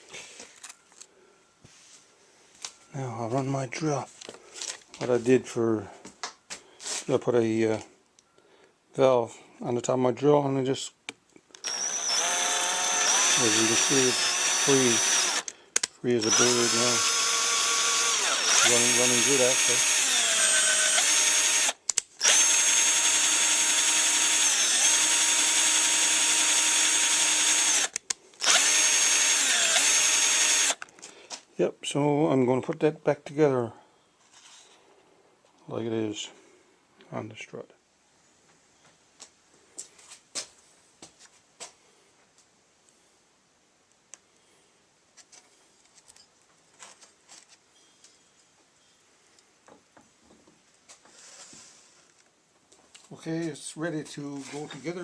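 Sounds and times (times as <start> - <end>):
electric drill whining: 11.6 - 30.8
parts clicking and knocking: 13.0 - 16.5, 19.8 - 22.8, 24.0 - 31.1.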